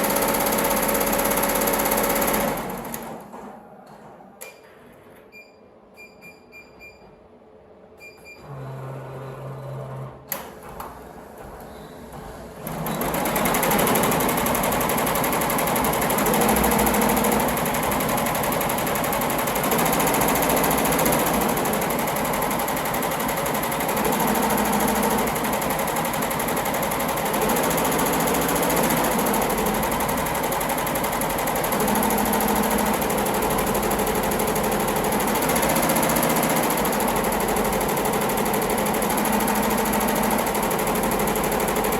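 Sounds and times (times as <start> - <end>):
embroidery machine stitching: 0.0 - 3.2, 12.6 - 41.9.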